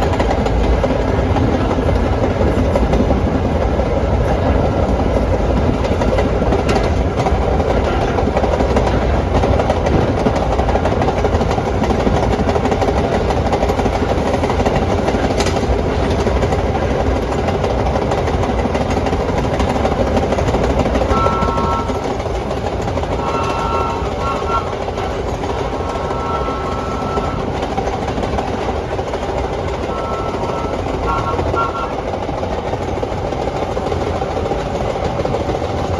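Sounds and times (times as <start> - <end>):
subway train rumbling on track: 0.0 - 35.9
short steady tones: 21.0 - 22.3, 23.1 - 27.8, 29.7 - 32.0.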